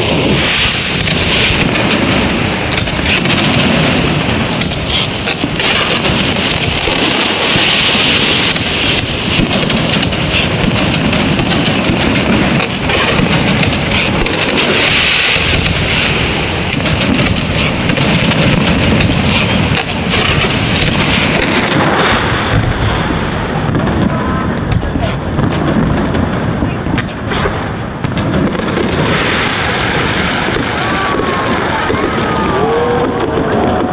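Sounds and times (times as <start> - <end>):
fireworks bangs and crackles: 0.0 - 33.9.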